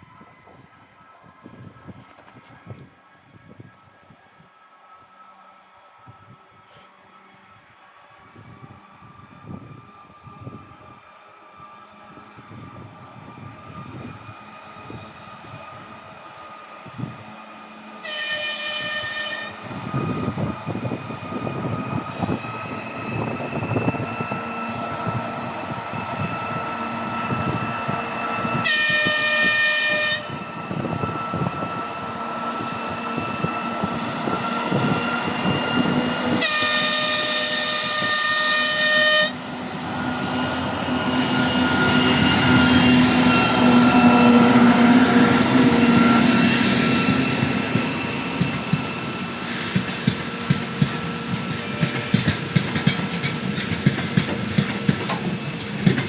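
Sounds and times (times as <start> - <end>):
locomotive horn blasts: 18.0 - 20.0, 28.5 - 30.5, 36.4 - 39.6.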